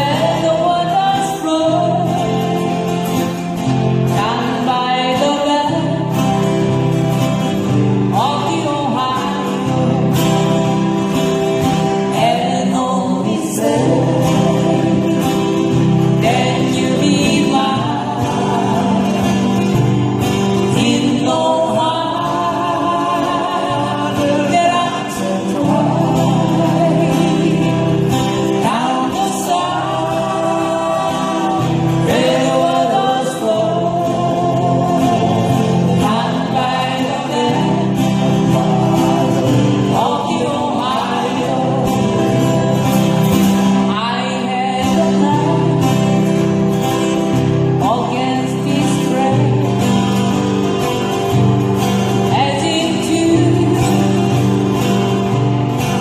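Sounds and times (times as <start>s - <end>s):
strummed acoustic guitars: 0.0s - 56.0s
voices singing together: 0.0s - 56.0s.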